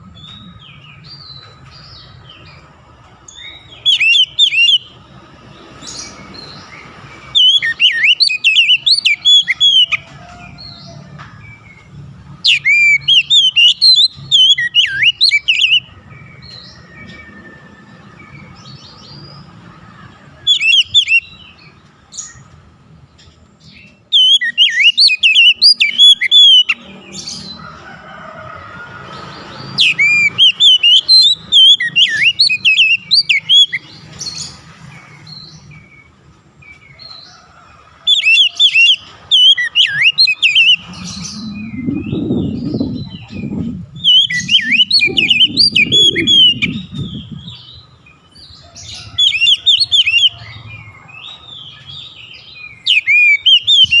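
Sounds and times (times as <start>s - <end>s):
bird singing whistled notes: 3.3s - 5.0s, 6.0s - 10.0s, 12.4s - 19.2s, 24.1s - 27.0s, 29.8s - 33.9s, 38.1s - 47.9s, 51.7s - 54.0s.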